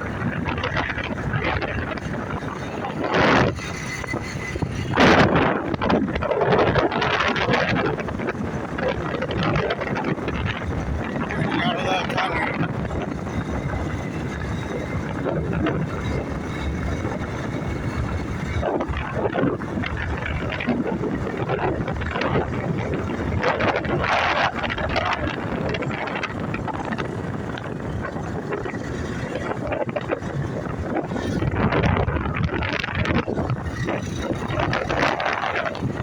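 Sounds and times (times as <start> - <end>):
motorbike engine running: 0.0 - 36.0
wind rushing over microphone: 0.0 - 36.0.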